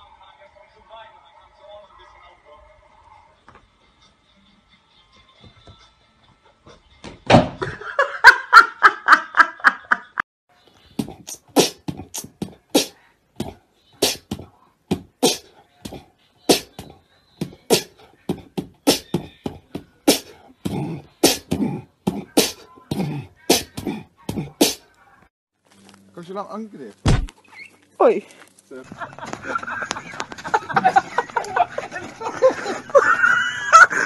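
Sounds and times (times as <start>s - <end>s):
mouth clicks: 11.0s - 14.4s.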